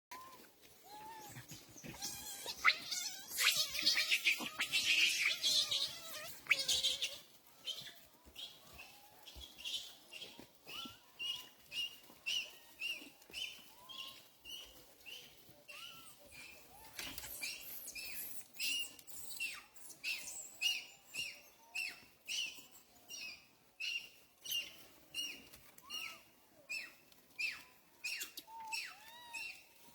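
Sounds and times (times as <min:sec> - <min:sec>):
small animal chirping: 0:01.0 - 0:29.6.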